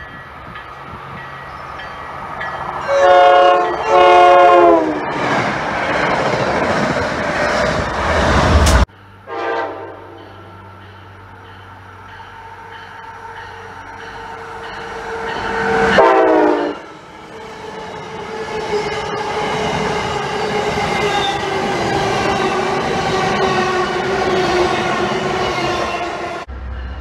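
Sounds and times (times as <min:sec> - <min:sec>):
rush of passing train: 0:00.0 - 0:27.0
train horn: 0:02.8 - 0:05.1, 0:09.2 - 0:10.5, 0:14.4 - 0:16.9.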